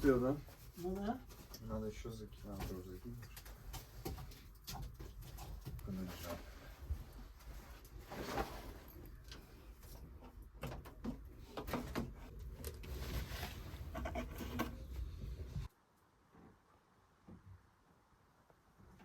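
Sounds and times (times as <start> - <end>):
firewood knocking and scraping: 10.2 - 15.7.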